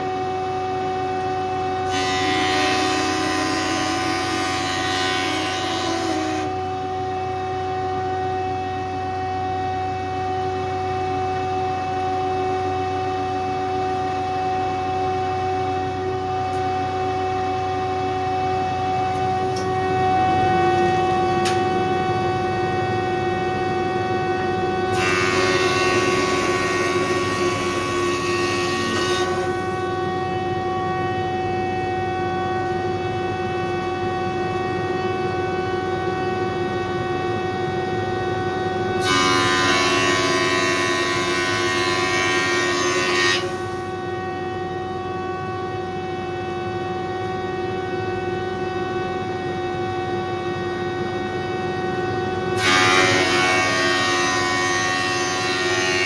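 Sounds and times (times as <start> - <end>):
thickness planer cutting wood: 24.9 - 29.8.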